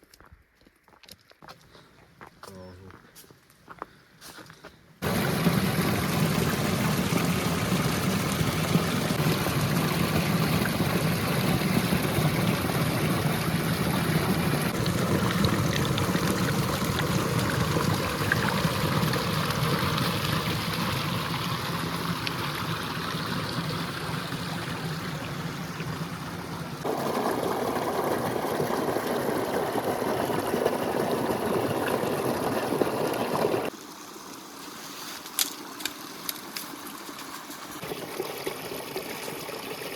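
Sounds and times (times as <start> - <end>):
river water flowing: 5.0 - 34.6.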